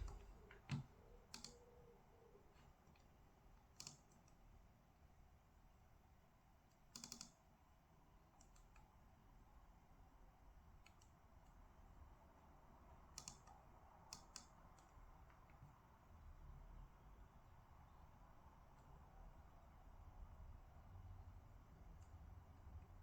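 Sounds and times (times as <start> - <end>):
keyboard keys clicking: 0.0 - 1.6
low room hum: 0.0 - 23.0.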